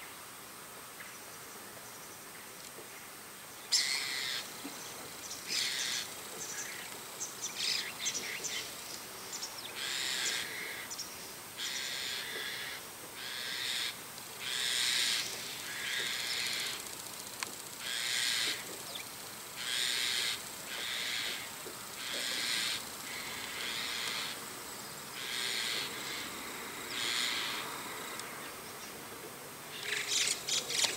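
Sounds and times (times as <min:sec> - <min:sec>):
harsh scratchy bird calls: 0:03.7 - 0:11.0, 0:17.8 - 0:24.4, 0:25.2 - 0:28.6, 0:29.7 - 0:30.9.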